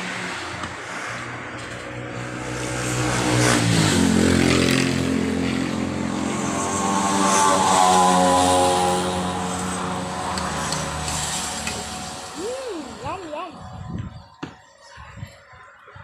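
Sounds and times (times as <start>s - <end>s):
vehicle engine humming: 3.9s - 14.9s.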